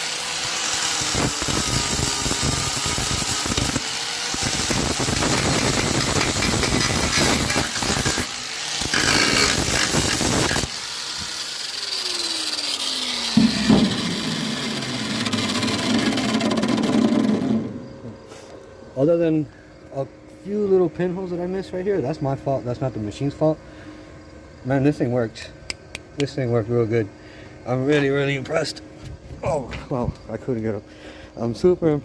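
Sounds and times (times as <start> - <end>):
grinder disc spinning down: 0.0 - 18.2
grinder grinding metal: 0.0 - 18.5.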